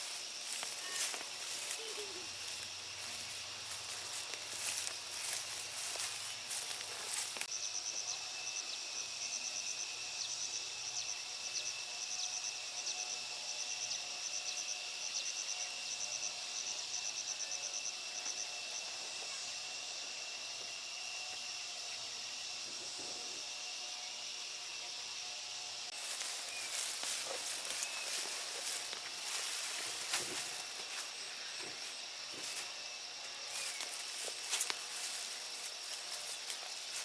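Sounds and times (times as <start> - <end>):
high-pitched insect drone: 0.0 - 37.0
insects chirping in pulses: 0.0 - 37.0.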